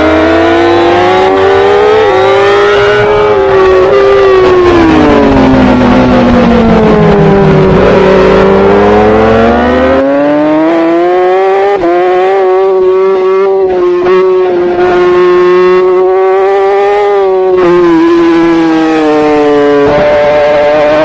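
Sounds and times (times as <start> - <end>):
superbike engine at high revs: 0.0 - 21.0.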